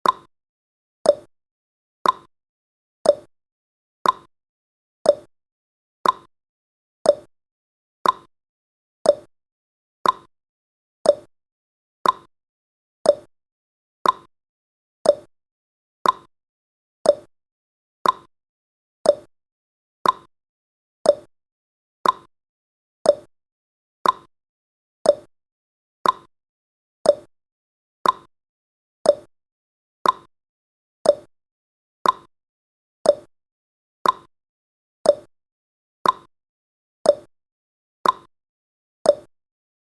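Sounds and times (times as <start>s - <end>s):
clock ticking: 2.0s - 2.3s, 4.0s - 4.3s, 6.0s - 6.3s, 8.0s - 8.3s, 10.0s - 10.3s, 12.0s - 12.3s, 14.0s - 14.3s, 15.1s - 15.3s, 16.0s - 16.3s, 18.0s - 18.3s, 20.0s - 20.3s, 21.1s - 21.3s, 22.0s - 22.3s, 24.0s - 24.3s, 26.0s - 26.3s, 28.0s - 28.3s, 29.1s - 29.3s, 30.0s - 30.3s, 31.1s - 31.3s, 32.0s - 32.3s, 33.1s - 33.3s, 34.0s - 34.3s, 35.1s - 35.3s, 36.0s - 36.3s, 38.0s - 38.3s, 39.1s - 39.3s.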